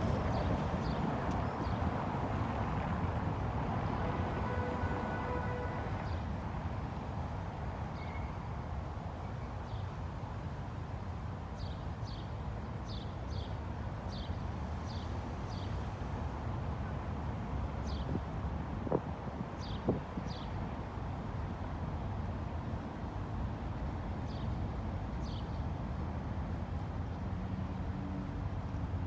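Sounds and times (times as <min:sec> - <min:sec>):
traffic hum: 0:00.0 - 0:07.9.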